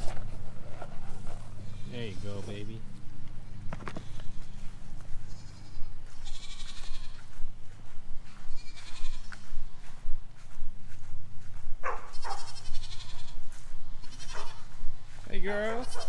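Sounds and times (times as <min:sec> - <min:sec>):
goats bleating: 0:01.4 - 0:03.0, 0:03.8 - 0:10.0, 0:11.9 - 0:16.0.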